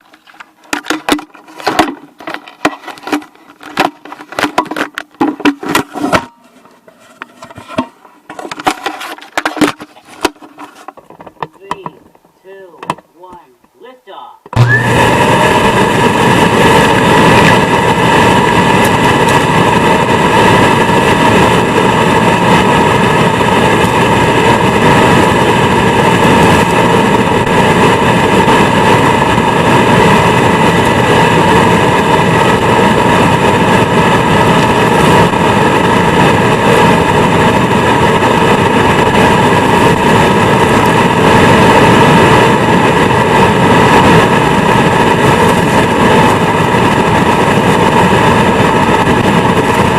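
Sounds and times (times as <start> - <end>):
vacuum cleaner motor whine: 14.6 - 49.9.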